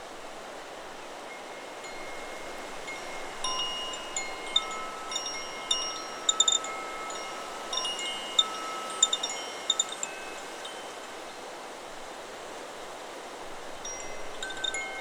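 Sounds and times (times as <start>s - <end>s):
wind chime ringing: 1.3s - 11.0s, 13.9s - 15.0s.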